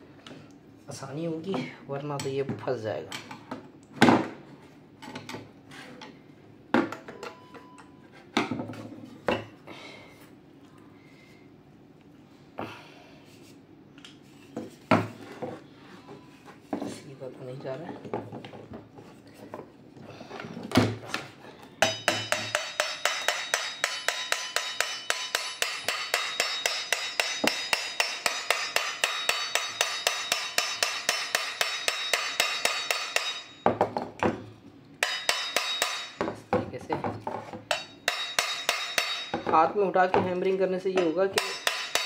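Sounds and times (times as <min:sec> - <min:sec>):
hammer tapping on metal: 0:21.8 - 0:34.0, 0:35.0 - 0:36.4, 0:37.7 - 0:39.5, 0:41.0 - 0:42.0.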